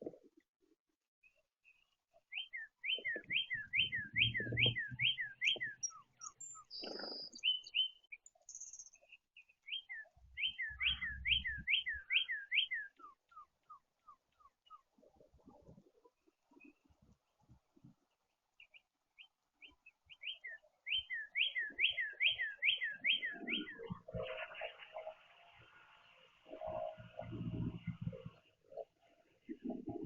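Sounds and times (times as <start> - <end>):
songbird whistling: 2.3 - 9.0, 9.6 - 13.8, 20.2 - 23.9.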